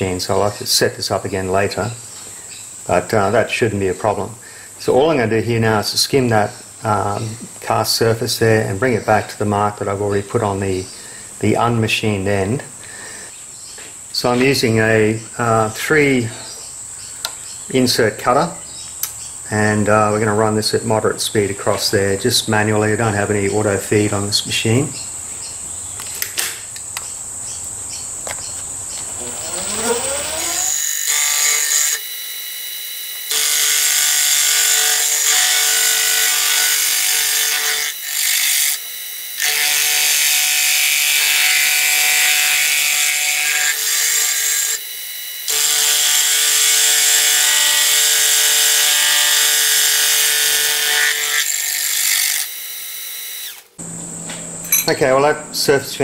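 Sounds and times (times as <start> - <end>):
milling machine whine: 29.0 - 34.0
harsh ringing metal cutting: 29.1 - 52.6, 53.4 - 55.4.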